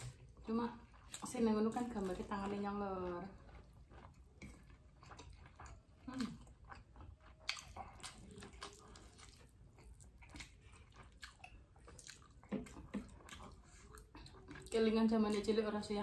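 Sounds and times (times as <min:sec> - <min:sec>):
people chewing food: 0:00.0 - 0:16.0.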